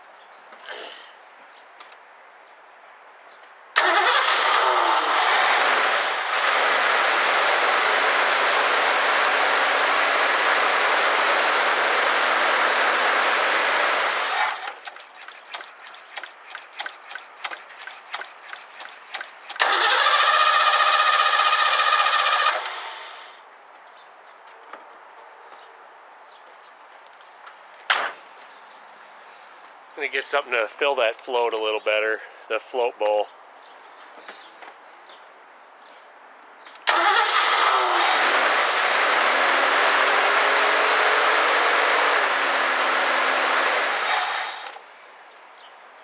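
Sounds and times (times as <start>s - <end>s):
car engine starting and dying: 3.8s - 23.4s, 36.9s - 44.9s.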